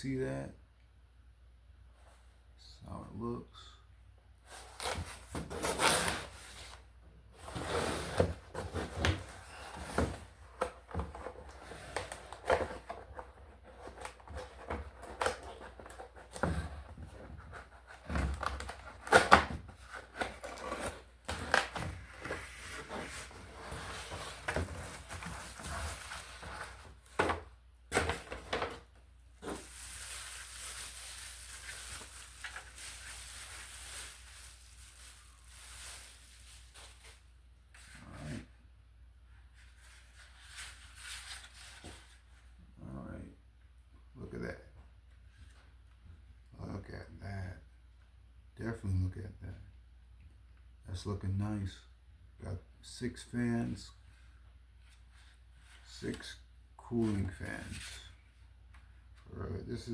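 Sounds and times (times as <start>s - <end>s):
cardboard and plastic rustling: 4.4s - 38.0s.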